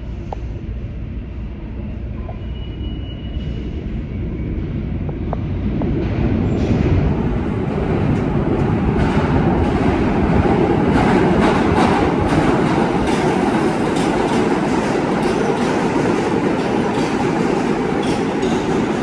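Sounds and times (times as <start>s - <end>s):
subway train rumbling on rails: 0.0s - 19.0s.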